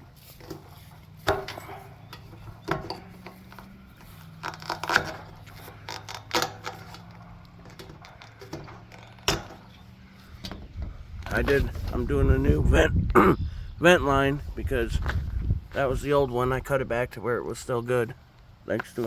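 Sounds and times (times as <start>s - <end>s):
parts clicking and knocking: 0.0s - 12.0s.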